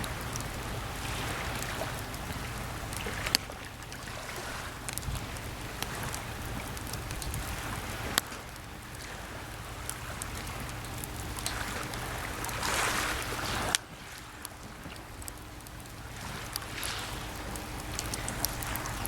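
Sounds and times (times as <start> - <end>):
campfire crackling and popping: 0.0 - 19.0
small sea waves washing: 0.0 - 19.0.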